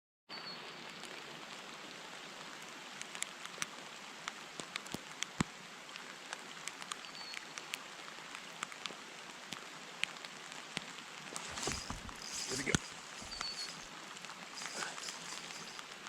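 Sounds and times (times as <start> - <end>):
raindrops ticking close by: 0.9 - 16.0
heavy rain hiss: 11.0 - 16.0.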